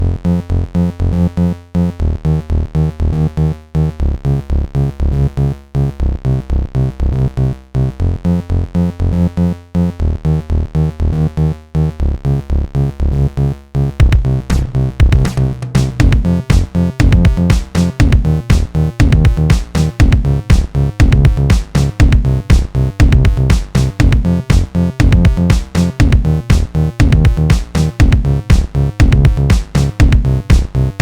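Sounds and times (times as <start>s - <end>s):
chopped low synth notes: 0.0s - 31.0s
drum machine beat: 14.0s - 31.0s.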